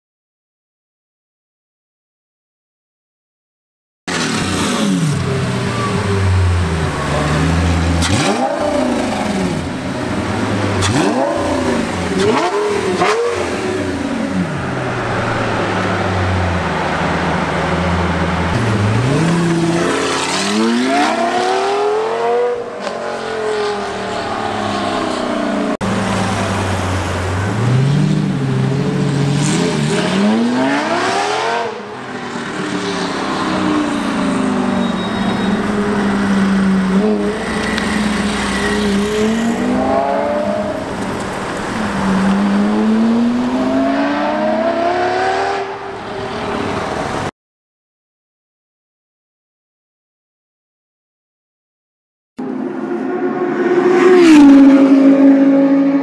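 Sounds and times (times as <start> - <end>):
sports car engine revving: 4.1 - 14.6, 35.9 - 45.8.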